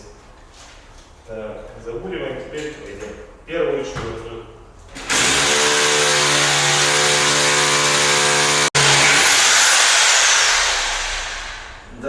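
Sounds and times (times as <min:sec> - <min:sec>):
hammer drill boring into concrete: 0:05.0 - 0:11.8
motor spinning down whine: 0:08.0 - 0:11.9.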